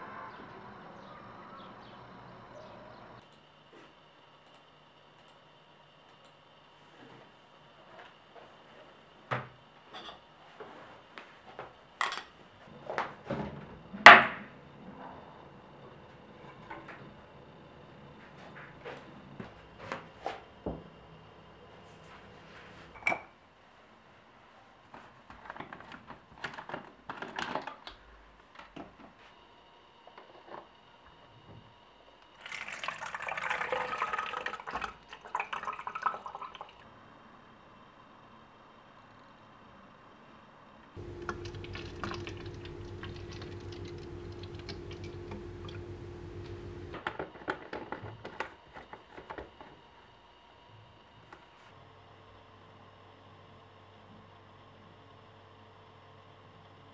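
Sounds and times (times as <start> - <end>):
water running and splashing: 32.4 - 36.8, 41.0 - 47.0.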